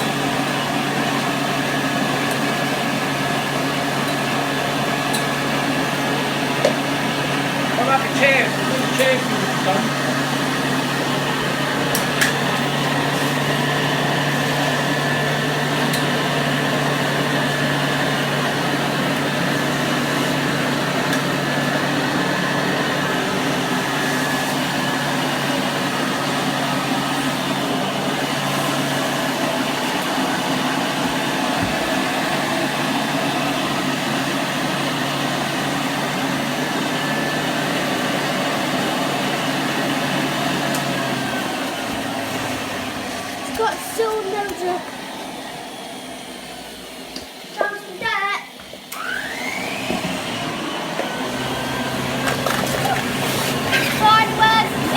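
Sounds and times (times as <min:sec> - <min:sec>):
vacuum cleaner running: 0:00.0 - 0:54.9.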